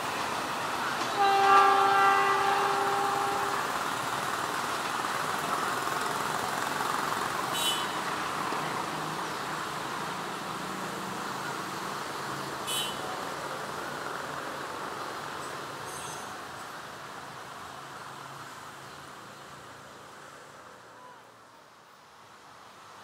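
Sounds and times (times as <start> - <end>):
train wheels rushing on rails: 0.0 - 19.8.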